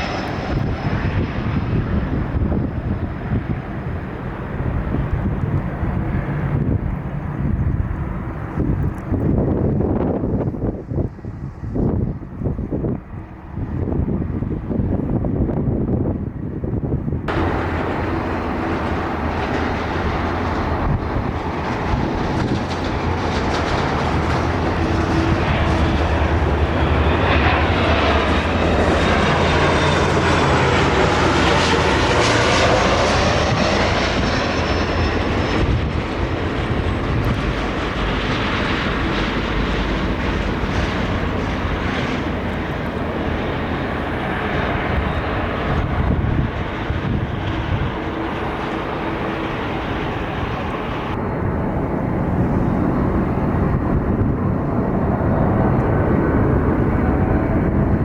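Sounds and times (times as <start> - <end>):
jet engines roaring past: 0.0 - 58.0
high engine whine: 16.4 - 58.0.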